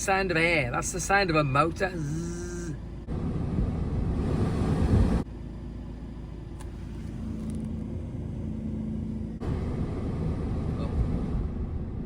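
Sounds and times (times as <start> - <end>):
rush of air: 3.2 - 5.3.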